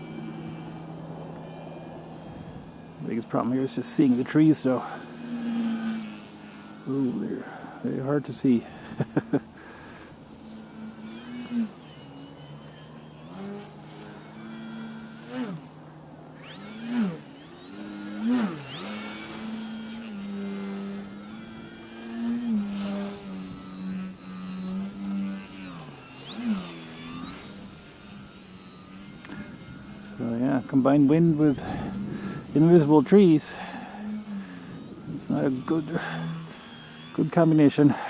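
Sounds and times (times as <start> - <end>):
model plane motor buzzing: 0.0 - 38.0.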